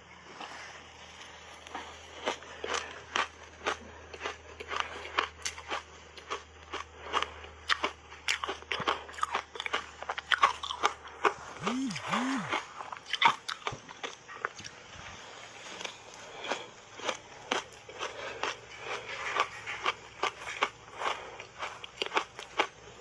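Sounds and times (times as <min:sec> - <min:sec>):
crunchy ice being chewed: 0:00.1 - 0:23.0.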